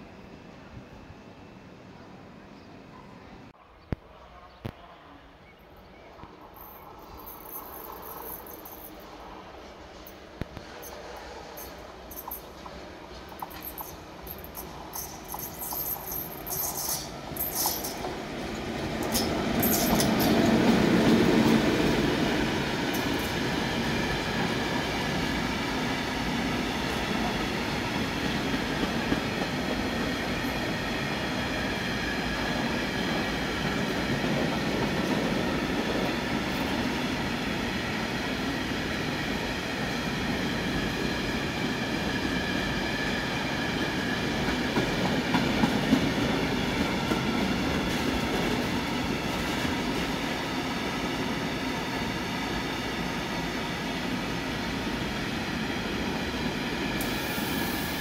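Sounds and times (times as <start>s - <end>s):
train wheels on rails: 6.2s - 58.0s.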